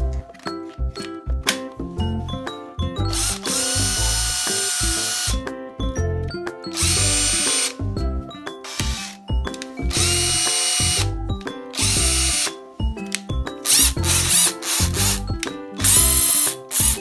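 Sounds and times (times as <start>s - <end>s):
cordless power tool motor whining: 3.1s - 5.4s, 6.8s - 7.8s, 8.7s - 9.2s, 9.9s - 11.1s, 11.8s - 12.5s, 13.7s - 15.2s, 15.8s - 17.0s.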